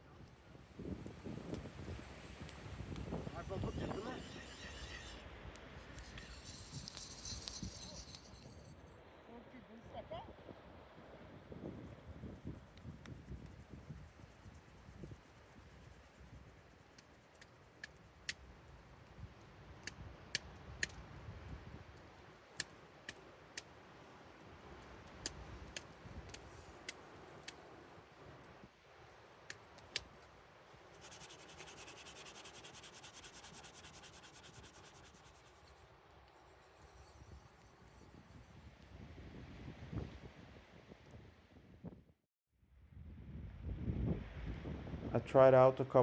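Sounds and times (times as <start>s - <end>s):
campfire crackling: 0.0s - 9.1s, 11.9s - 38.6s
fast steady rasping: 1.5s - 5.3s, 5.9s - 8.7s, 30.9s - 39.0s.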